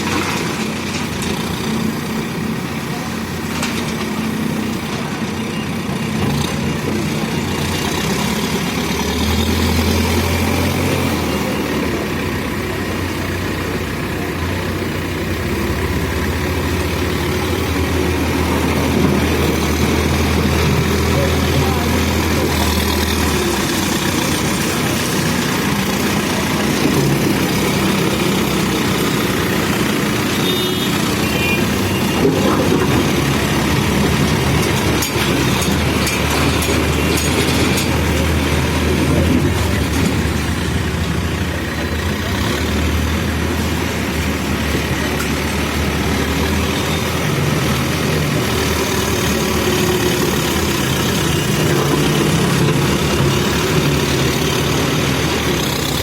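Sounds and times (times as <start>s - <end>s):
backhoe diesel engine running: 0.0s - 56.0s.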